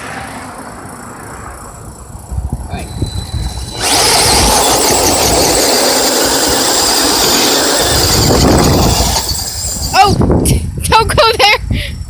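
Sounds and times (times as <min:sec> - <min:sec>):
rc truck motors straining: 0:02.8 - 0:10.2.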